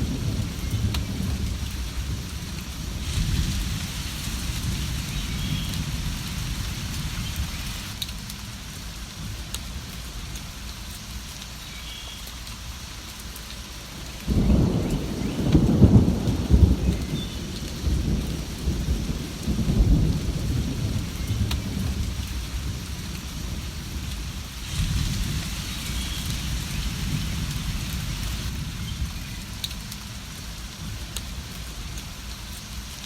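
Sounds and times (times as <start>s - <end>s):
thunder rumbling: 0.0s - 8.0s, 14.3s - 31.5s
steady rain: 0.0s - 33.0s.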